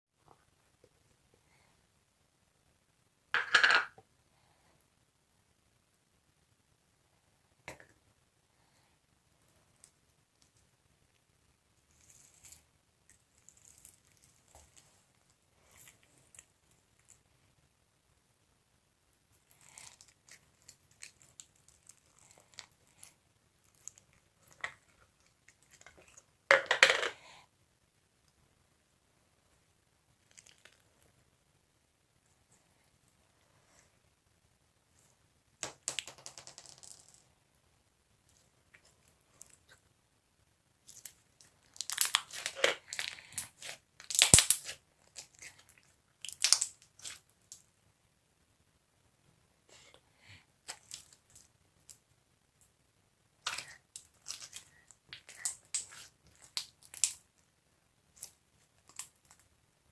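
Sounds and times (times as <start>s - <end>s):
crackling squish: 11.8s - 17.3s, 19.3s - 27.2s, 30.2s - 31.2s, 40.8s - 47.7s, 50.6s - 52.0s, 53.4s - 59.6s.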